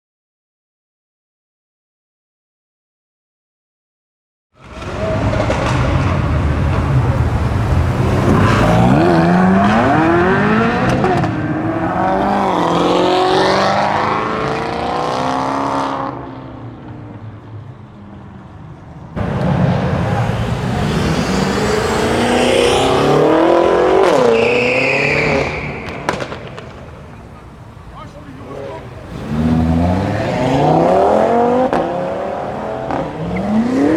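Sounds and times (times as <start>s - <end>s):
car engines revving hard: 4.6s - 33.9s.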